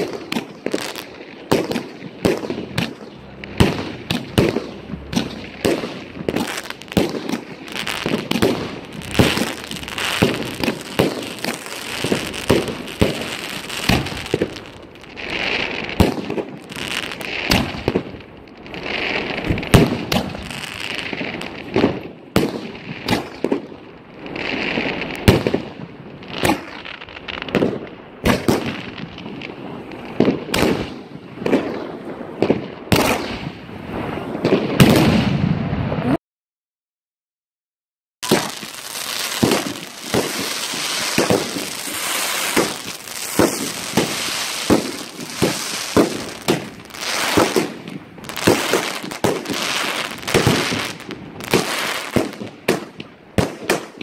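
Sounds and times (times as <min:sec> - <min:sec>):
hissing crackle: 0:02.7 - 0:16.0, 0:38.2 - 0:52.6.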